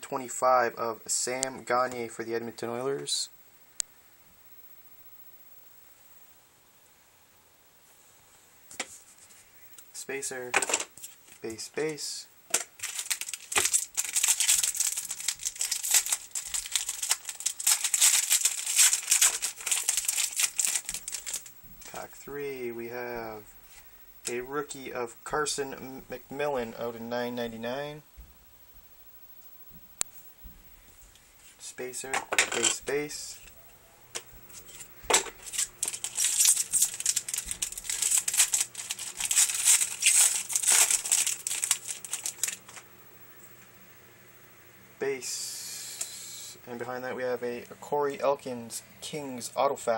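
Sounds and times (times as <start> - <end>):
cards being handled: 10.6 - 21.5, 34.2 - 42.8
foil wrapper crinkling: 12.5 - 22.0, 34.5 - 42.9.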